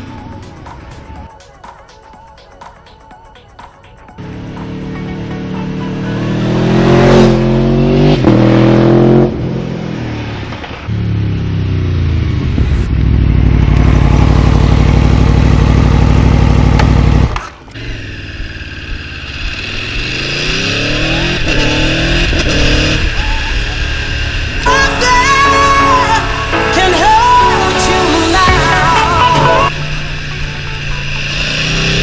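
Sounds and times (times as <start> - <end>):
motorcycle engine accelerating hard: 4.2 - 24.7, 29.6 - 32.0.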